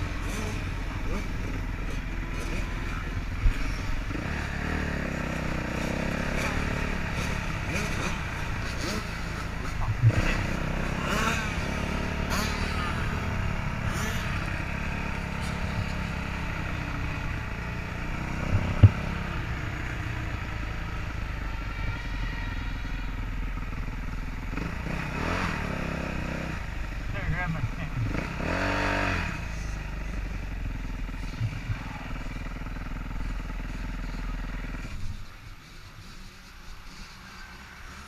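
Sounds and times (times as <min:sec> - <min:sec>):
dirt bike engines revving: 0:00.0 - 0:38.0
sharp knocks: 0:18.5 - 0:19.1.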